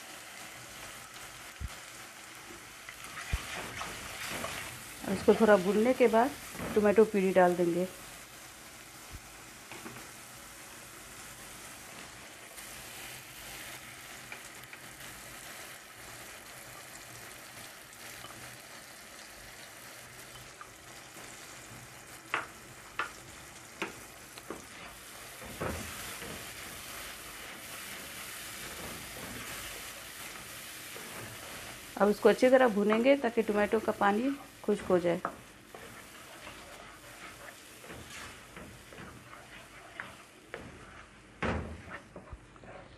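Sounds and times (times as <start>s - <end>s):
onions sizzling in hot oil: 0.0s - 42.8s
spatula tapping wok: 22.3s - 31.7s, 32.8s - 33.2s, 34.8s - 42.3s.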